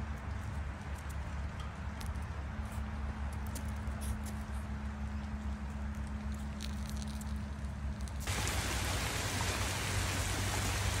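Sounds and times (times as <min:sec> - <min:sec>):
rain falling on trees: 0:08.2 - 0:11.0.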